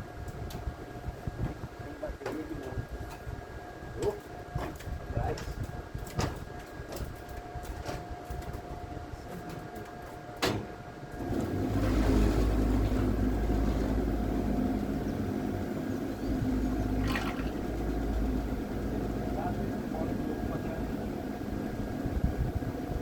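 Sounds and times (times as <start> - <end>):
motor humming: 9.3 - 23.0.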